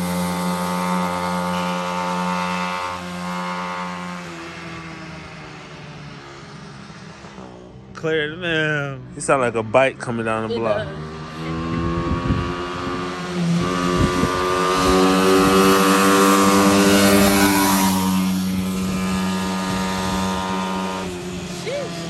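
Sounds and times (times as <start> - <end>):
atv engine passing: 0.0 - 22.0.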